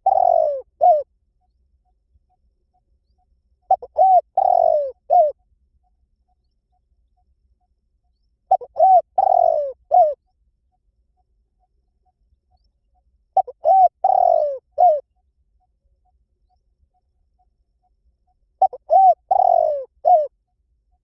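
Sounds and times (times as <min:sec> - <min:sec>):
dove cooing: 0:00.0 - 0:01.1, 0:03.7 - 0:05.4, 0:08.5 - 0:10.2, 0:13.4 - 0:15.0, 0:18.6 - 0:20.3.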